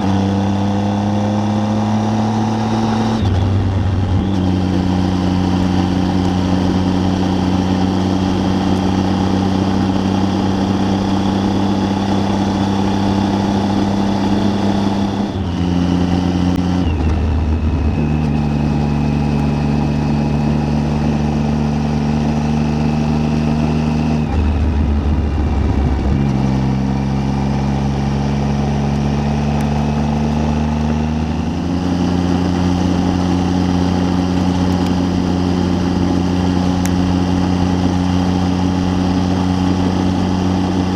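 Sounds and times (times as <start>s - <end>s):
motorcycle engine at road speed: 0.0s - 40.9s
wind noise: 24.1s - 27.0s.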